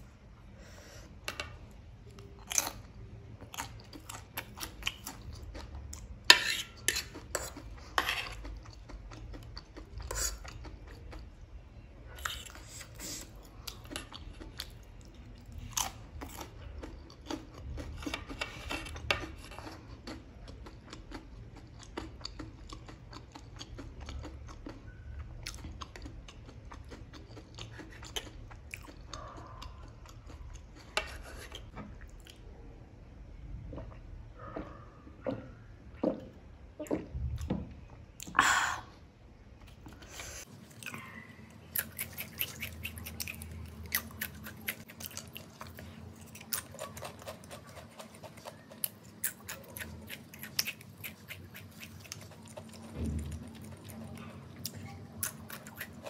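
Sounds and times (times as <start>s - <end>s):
chewing and crunching chips: 2.0s - 32.7s, 39.6s - 56.0s
fork clicking and scraping on plate: 5.5s - 9.2s.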